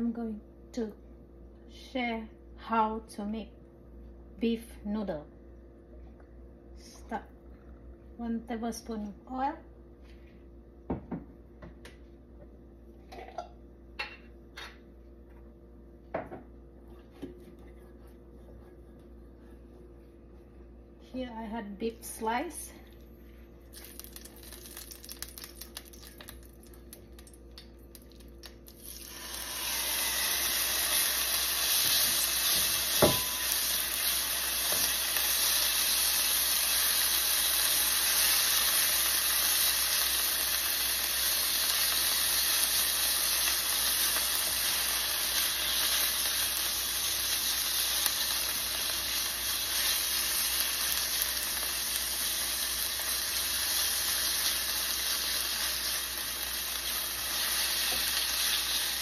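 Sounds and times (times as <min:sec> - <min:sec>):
meat sizzling in a frying pan: 0:23.7 - 0:27.3, 0:27.9 - 0:59.0.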